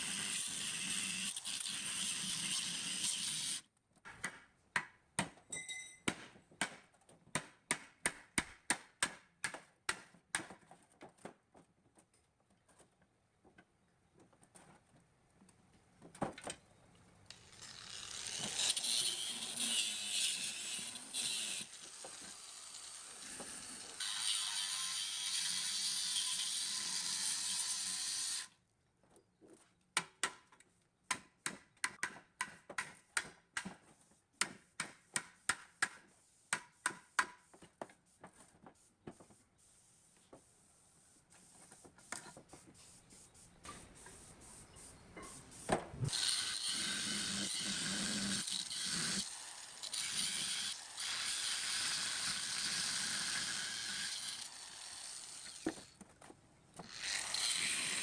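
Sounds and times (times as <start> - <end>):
noisy power tool on metal: 0.0 - 3.6, 17.4 - 28.5, 46.1 - 56.0, 56.8 - 58.0.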